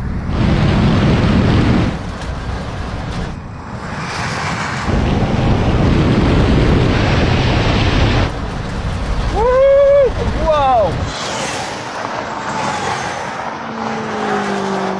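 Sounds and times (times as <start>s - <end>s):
low vehicle rumble: 0.0s - 12.4s
wind buffeting microphone: 0.0s - 12.4s.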